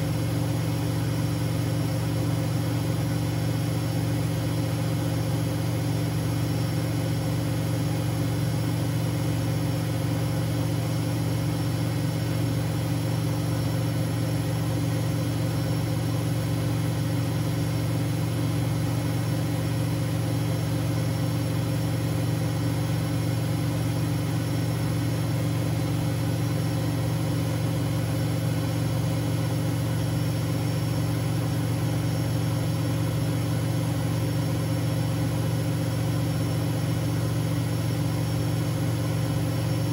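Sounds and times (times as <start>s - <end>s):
washing machine humming: 0.0s - 39.9s.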